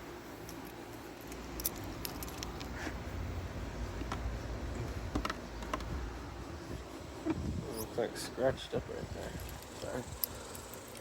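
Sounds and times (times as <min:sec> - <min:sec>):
phone microphone handling rumble: 0:03.9 - 0:08.0.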